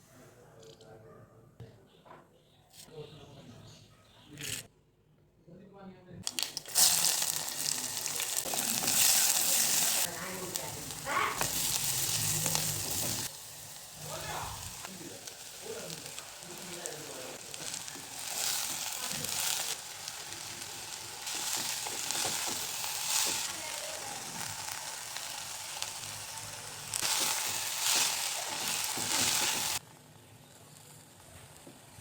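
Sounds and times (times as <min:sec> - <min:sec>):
food sizzling in a pan: 0:06.3 - 0:29.8.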